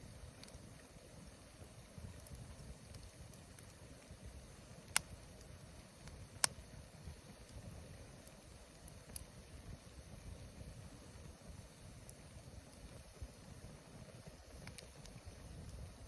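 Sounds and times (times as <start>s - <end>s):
campfire burning: 0.0s - 16.0s
wood crackling pops: 1.7s - 9.4s, 14.1s - 16.0s.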